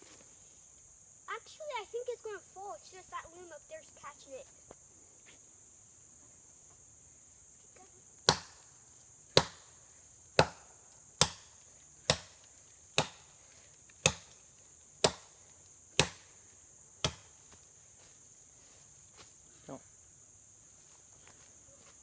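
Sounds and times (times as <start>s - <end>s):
insect chirring: 0.0s - 22.0s
axe chopping tree trunk: 8.2s - 8.6s, 9.3s - 9.7s, 10.4s - 13.3s, 14.0s - 14.4s, 15.0s - 15.4s, 16.0s - 16.3s, 17.0s - 17.4s.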